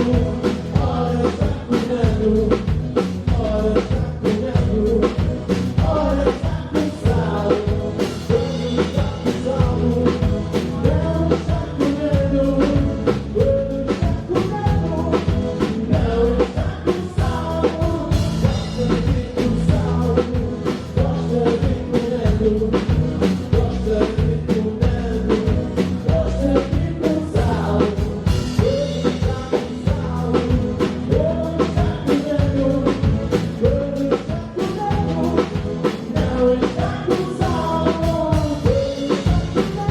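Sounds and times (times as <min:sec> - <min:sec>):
bass: 0:00.0 - 0:39.9
drum kit beat: 0:00.0 - 0:39.9
person singing: 0:00.0 - 0:39.9.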